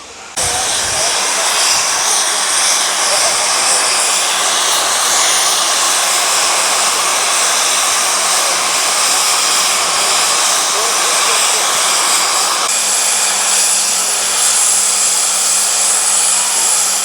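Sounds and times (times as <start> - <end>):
steam locomotive hissing: 0.0 - 17.0.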